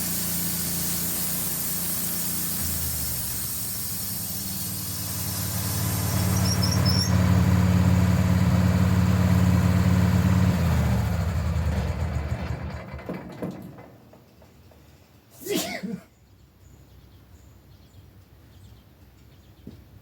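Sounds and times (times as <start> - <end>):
sawmill engine running: 0.0 - 14.5
brief high squeaks: 5.9 - 7.3.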